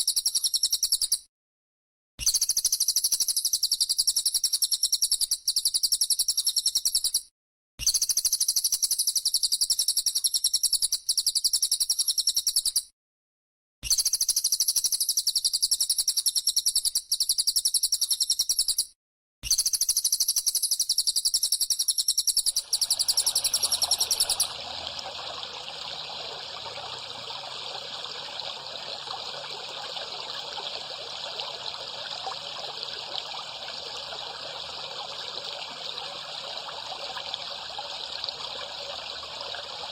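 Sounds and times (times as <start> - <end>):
trickling water: 22.5 - 39.9
cicada buzzing: 22.6 - 34.8.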